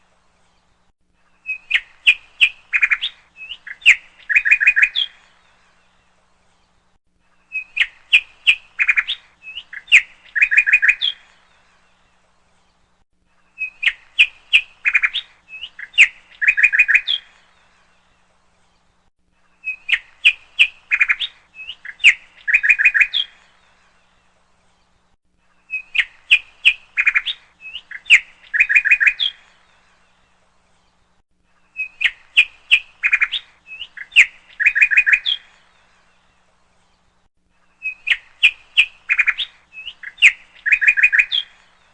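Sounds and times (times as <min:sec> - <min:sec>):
bird chirping and trilling: 0:01.4 - 0:05.3, 0:07.5 - 0:11.7, 0:13.6 - 0:17.7, 0:19.6 - 0:23.9, 0:25.7 - 0:30.2, 0:31.6 - 0:36.2, 0:37.7 - 0:41.9.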